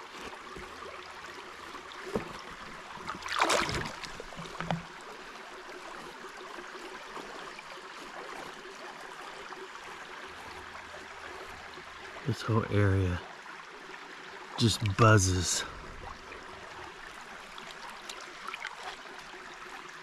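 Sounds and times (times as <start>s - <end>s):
creek water running: 0.0s - 20.0s
water splash: 3.0s - 4.9s.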